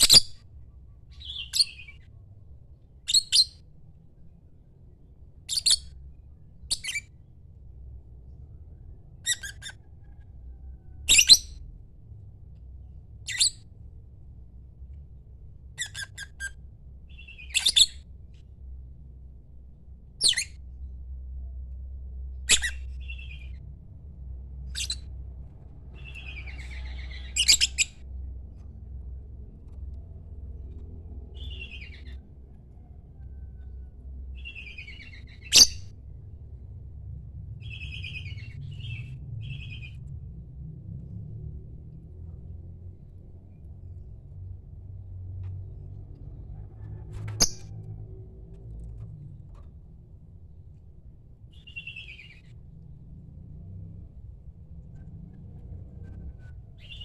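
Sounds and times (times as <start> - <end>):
lovebird shrill calls: 3.1 - 3.5, 11.1 - 11.5, 22.5 - 23.4, 26.1 - 27.9, 34.4 - 35.8.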